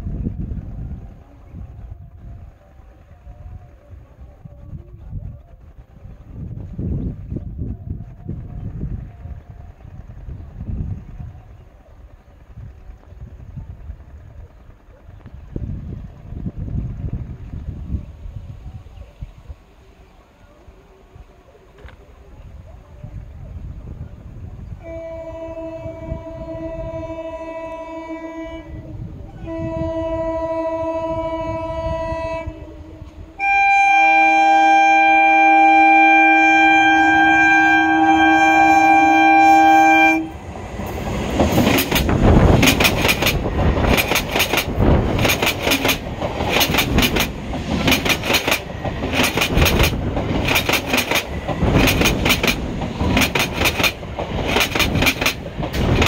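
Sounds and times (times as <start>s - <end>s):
train horn blasts: 24.8s - 41.0s
wheels clickety-clack over rail joints: 40.4s - 56.0s.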